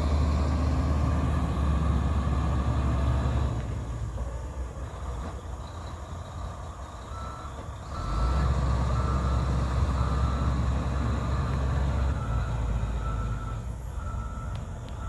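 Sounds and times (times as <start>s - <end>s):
diesel machine engine: 0.0s - 15.0s
reversing alarm beeps: 7.0s - 15.0s.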